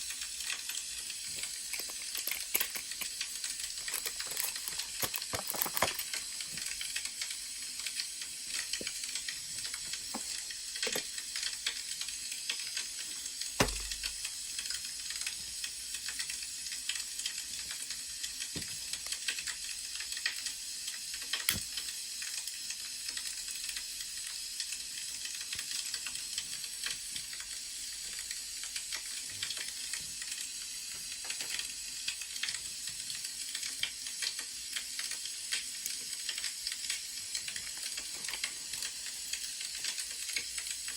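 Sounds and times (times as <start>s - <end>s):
wood fire crackling: 0.0s - 22.4s.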